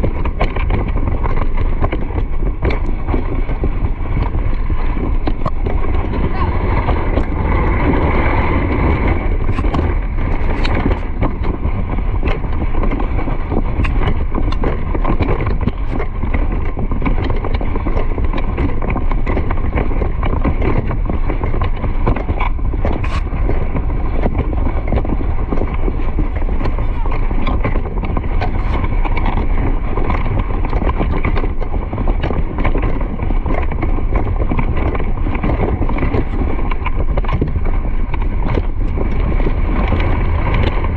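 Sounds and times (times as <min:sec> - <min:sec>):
irregular knocks and clicks: 0:00.0 - 0:08.2
wind buffeting microphone: 0:00.0 - 0:40.9.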